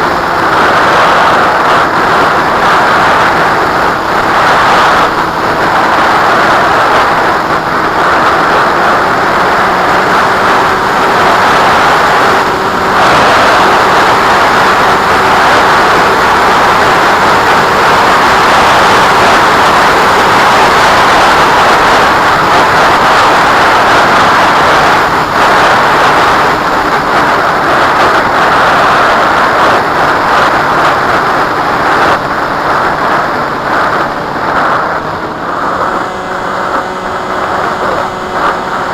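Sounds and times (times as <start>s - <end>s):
strong wind on microphone: 0.0s - 38.9s.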